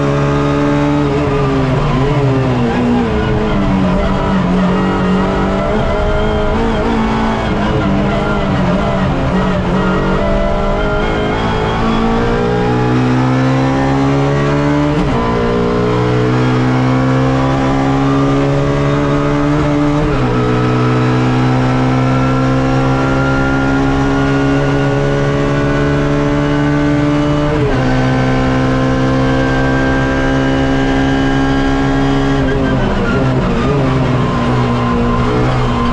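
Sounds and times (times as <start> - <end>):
race car engine at full throttle: 0.0 - 35.9.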